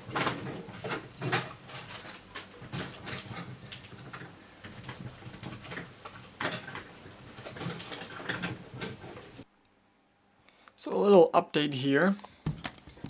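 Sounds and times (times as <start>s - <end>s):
small objects clicking and rustling: 0.0s - 9.4s.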